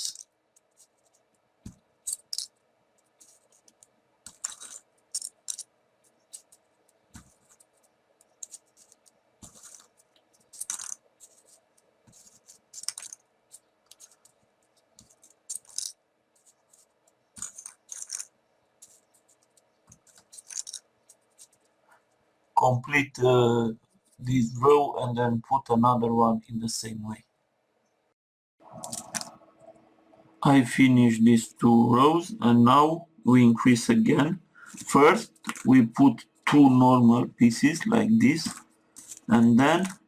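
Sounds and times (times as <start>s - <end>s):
paper rustling and clicking: 6.2s - 14.4s, 38.4s - 40.0s.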